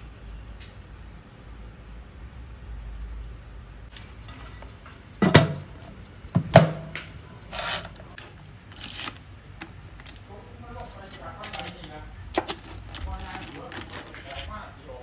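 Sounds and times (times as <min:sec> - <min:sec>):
kitchenware knocking: 0:05.2 - 0:05.6
rustling scrapes: 0:07.5 - 0:09.2.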